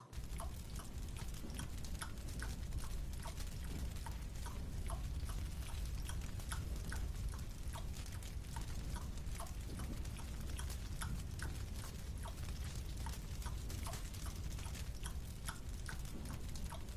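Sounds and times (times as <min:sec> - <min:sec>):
low steady hum: 0:00.0 - 0:16.9.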